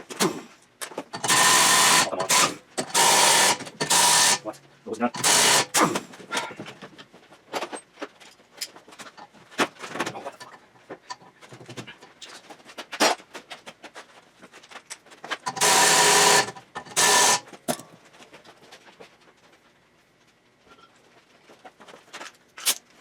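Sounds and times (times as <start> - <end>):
power tool bursts: 0.0 - 0.5, 1.1 - 6.1, 15.5 - 17.8.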